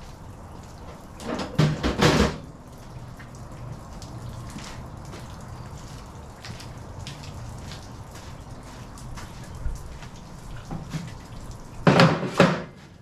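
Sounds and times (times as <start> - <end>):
light rain dripping: 0.0 - 13.0
clatter of knocks: 1.2 - 2.5, 11.8 - 12.8.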